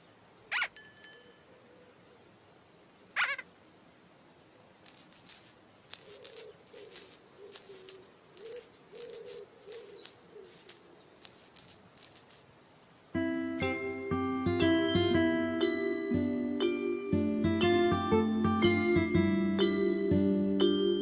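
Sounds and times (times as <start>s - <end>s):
rhythmic jingling rattle: 4.8s - 13.1s.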